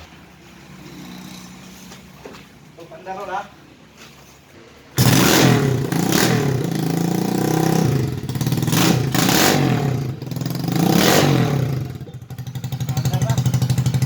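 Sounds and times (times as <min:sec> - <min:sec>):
motorcycle engine revving: 0:00.6 - 0:02.2, 0:04.9 - 0:14.0.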